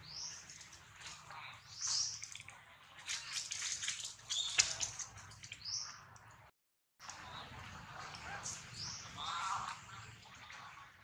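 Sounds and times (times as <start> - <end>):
birds chirping: 0.0 - 3.5.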